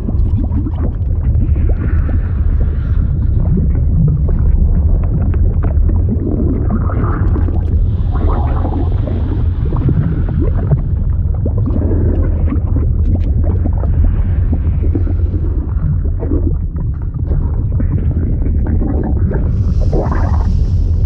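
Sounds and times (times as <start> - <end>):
liquid churning and bubbling: 0.0 - 21.0.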